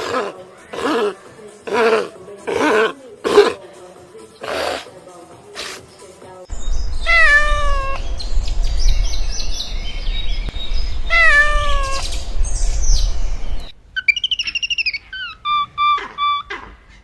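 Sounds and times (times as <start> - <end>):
steady low rumble: 6.5 - 13.9
cat meowing: 7.0 - 8.0, 11.1 - 12.1.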